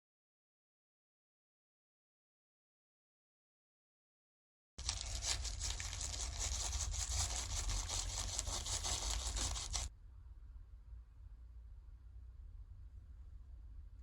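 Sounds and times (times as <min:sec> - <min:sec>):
slime crackling and squishing: 0:04.8 - 0:09.9.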